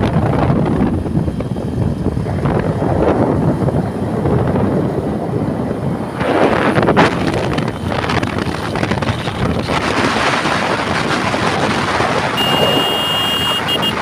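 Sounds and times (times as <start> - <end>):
wind buffeting microphone: 0.0 - 14.0
high-pitched beep: 12.4 - 14.0.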